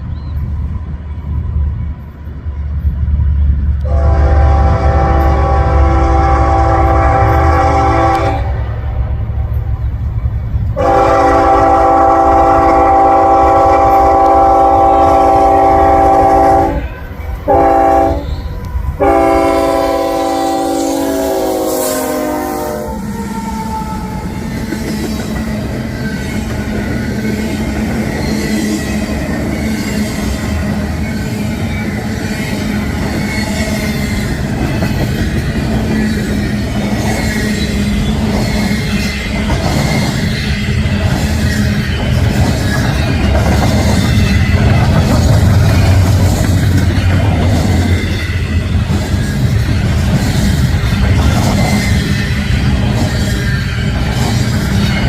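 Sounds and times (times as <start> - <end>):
train cars rumbling and clattering: 0.0 - 55.0
locomotive air horn blasts: 3.8 - 8.7, 10.8 - 18.3, 19.0 - 23.6.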